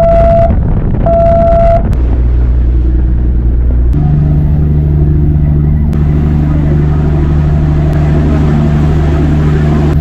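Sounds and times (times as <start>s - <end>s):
boat horn blasts: 0.0s - 1.9s
boat engine droning: 0.0s - 10.0s.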